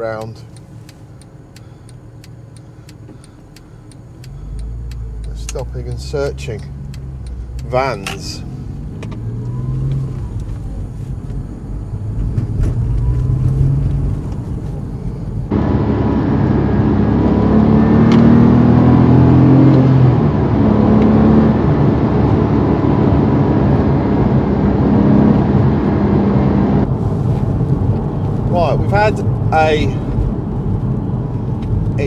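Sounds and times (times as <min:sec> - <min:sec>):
car engine revving while driving: 0:00.0 - 0:32.0
road noise: 0:00.0 - 0:32.0.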